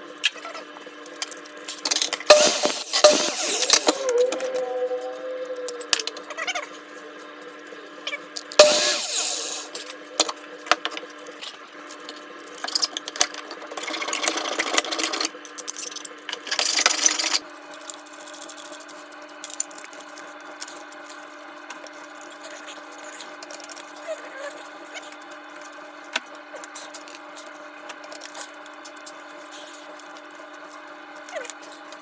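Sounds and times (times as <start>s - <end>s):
metallic clank with ring: 2.3s - 5.2s, 8.6s - 9.8s
scraping or rasping: 2.3s - 6.4s, 8.6s - 9.9s
steady hum: 2.3s - 6.5s, 8.6s - 11.4s.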